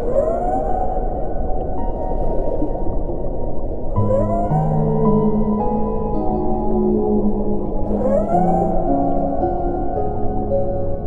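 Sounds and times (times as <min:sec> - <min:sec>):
slow ambient music: 0:00.0 - 0:11.0
whale song moan: 0:04.0 - 0:09.9.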